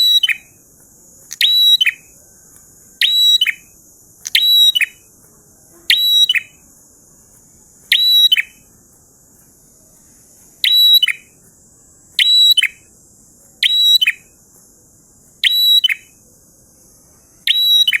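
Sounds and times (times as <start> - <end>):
bird singing sharp short phrases: 3.0 - 5.0, 7.9 - 8.6, 15.4 - 16.2.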